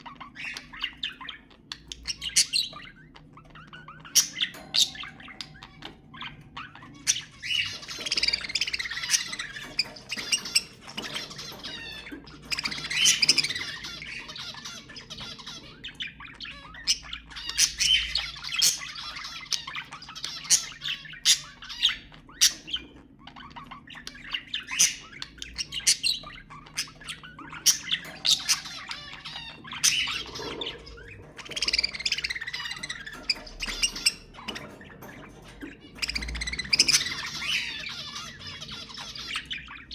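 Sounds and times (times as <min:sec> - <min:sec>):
budgerigars chattering: 0:00.0 - 0:39.9
budgerigar squawks: 0:24.4 - 0:39.9.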